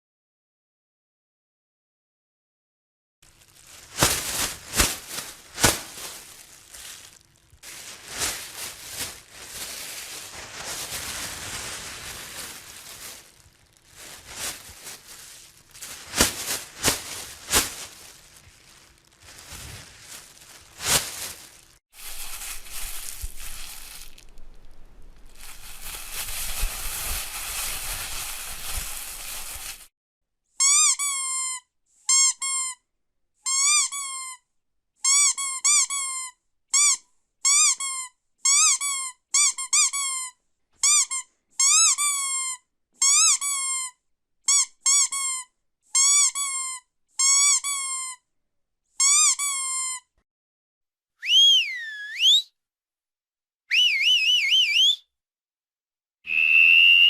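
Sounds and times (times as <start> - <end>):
rustling noise: 3.2 - 29.9
squeaky dog toy squeaking: 30.6 - 32.8, 33.5 - 34.4, 35.0 - 48.2, 49.0 - 50.1.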